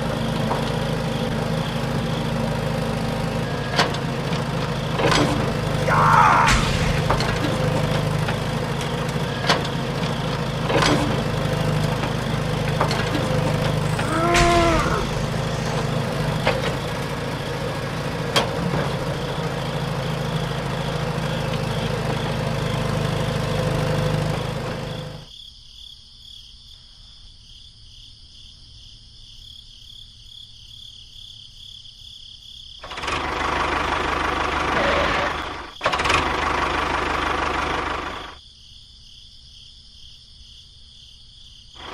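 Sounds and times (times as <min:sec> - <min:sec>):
motor running: 0:11.1 - 0:18.0.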